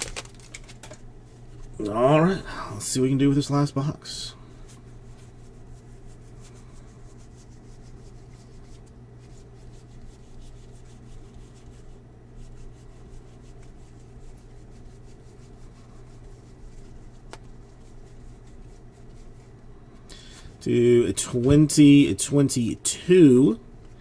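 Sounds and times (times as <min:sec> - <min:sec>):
foil packs rustling and crinkling: 0:00.0 - 0:01.0
low electrical hum: 0:00.0 - 0:24.0.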